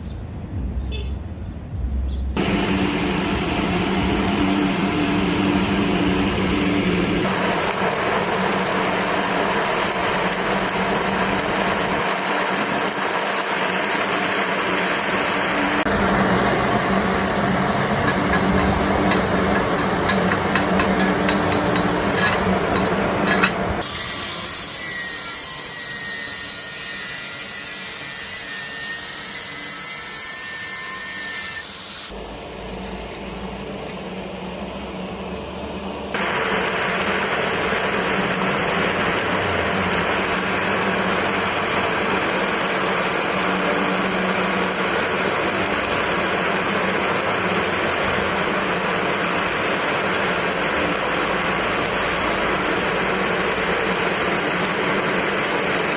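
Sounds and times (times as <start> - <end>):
welding arc crackling hiss: 2.4 - 55.9
high tool noise with whistling: 23.2 - 34.3.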